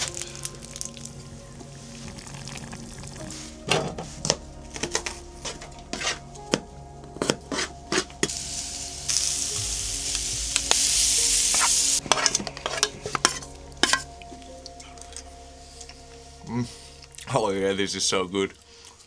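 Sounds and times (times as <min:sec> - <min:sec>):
food sizzling in pot: 0:07.2 - 0:14.4.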